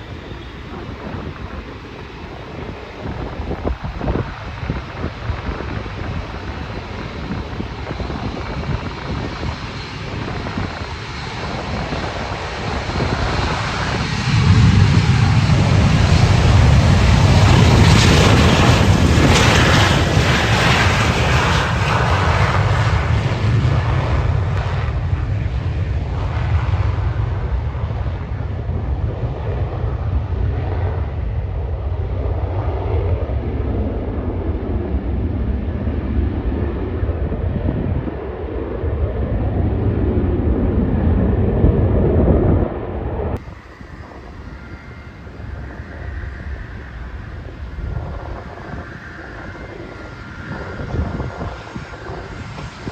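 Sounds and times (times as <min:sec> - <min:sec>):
jet engine roar: 0:00.0 - 0:52.9.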